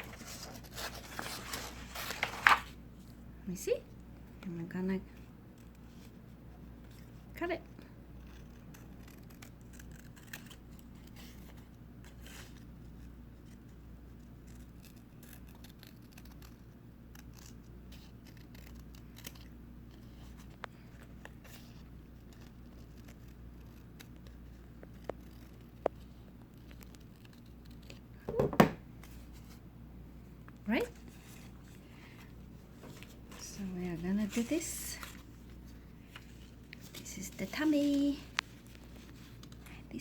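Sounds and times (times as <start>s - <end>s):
paper rustling: 0.0s - 3.2s, 30.9s - 39.8s
scissors cutting paper: 8.1s - 28.1s.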